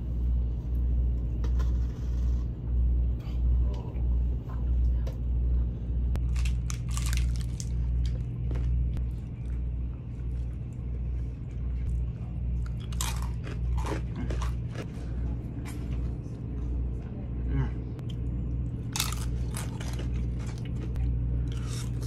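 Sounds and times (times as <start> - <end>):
crunchy food chewing: 6.2 - 15.0, 18.0 - 22.0.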